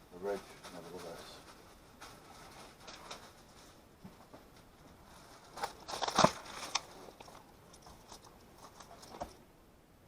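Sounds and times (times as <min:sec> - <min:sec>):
objects being handled: 0:00.4 - 0:09.4.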